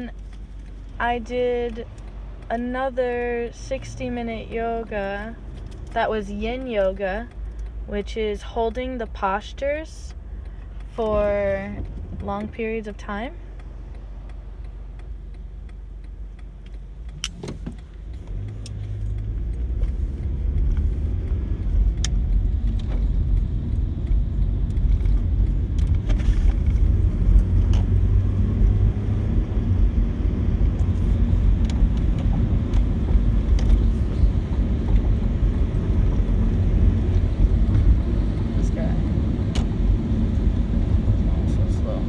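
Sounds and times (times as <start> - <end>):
car road noise from inside: 0.0 - 42.0
light clicks: 10.1 - 27.9.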